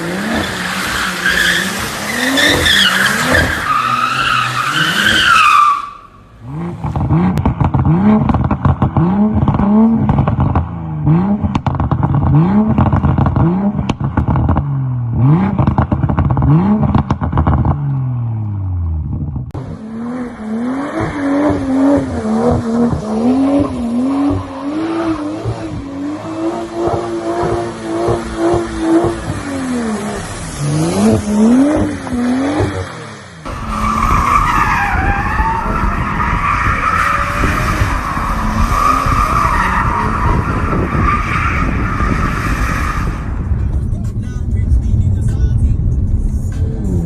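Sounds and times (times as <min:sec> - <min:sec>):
car engine revving: 0:00.0 - 0:47.0
tyre squeal: 0:00.2 - 0:06.2, 0:33.5 - 0:43.3.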